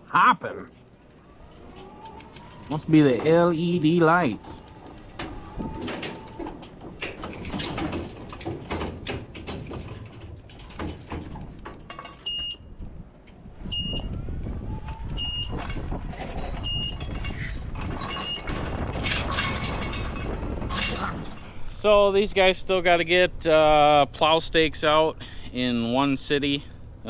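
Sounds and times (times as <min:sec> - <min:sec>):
forklift engine running: 0:00.0 - 0:27.0
clanks and knocks: 0:00.8 - 0:23.3
backup alarm beeping: 0:12.2 - 0:12.7, 0:13.6 - 0:14.2, 0:14.8 - 0:15.8, 0:16.6 - 0:17.1, 0:18.1 - 0:18.5.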